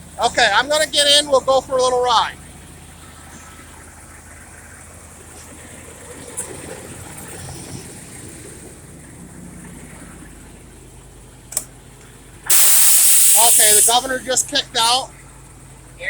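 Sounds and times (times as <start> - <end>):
truck engine idling: 0.0 - 16.0
sharp click: 11.5 - 11.7
air compressor building pressure: 12.4 - 14.9.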